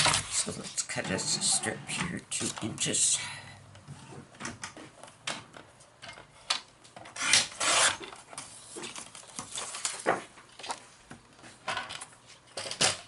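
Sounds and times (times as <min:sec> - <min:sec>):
paper rustling: 0:08.4 - 0:10.9.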